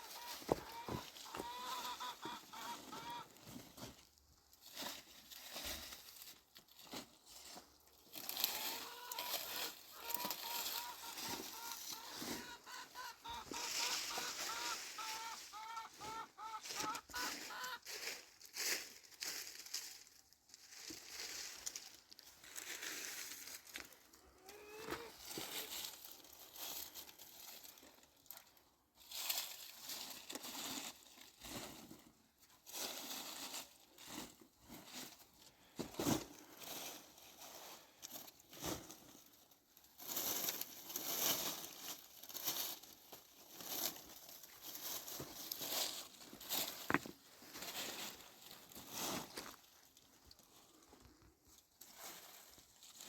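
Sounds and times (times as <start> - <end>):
fowl calling: 0.0 - 3.4, 8.5 - 18.0, 24.2 - 25.7
rustling: 0.0 - 16.0, 16.6 - 53.0.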